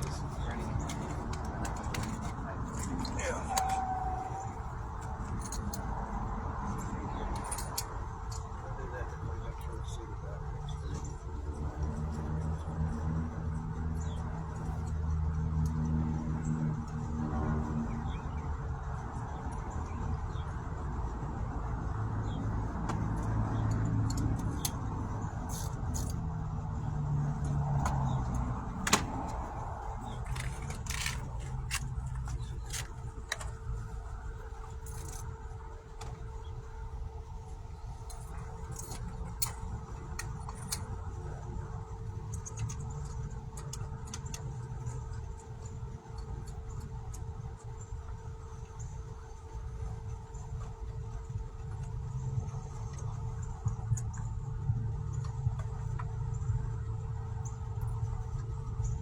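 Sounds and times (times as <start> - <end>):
light metallic clicks and jingles: 0.0 - 17.2, 21.8 - 34.0, 37.8 - 48.0.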